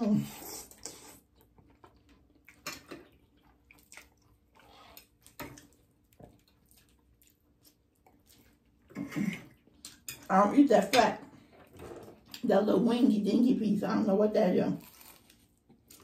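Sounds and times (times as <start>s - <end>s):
faint chewing: 0.2s - 10.3s, 14.8s - 16.0s.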